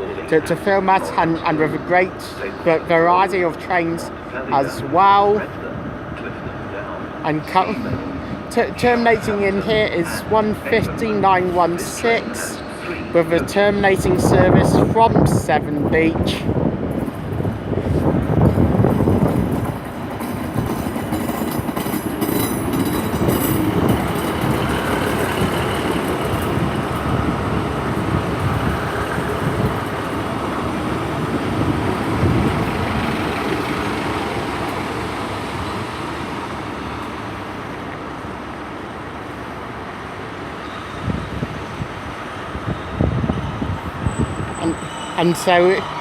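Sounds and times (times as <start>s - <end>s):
train engine and wheels on rails: 0.0s - 46.0s
faint high wheel squeal: 40.6s - 41.4s, 44.0s - 46.0s.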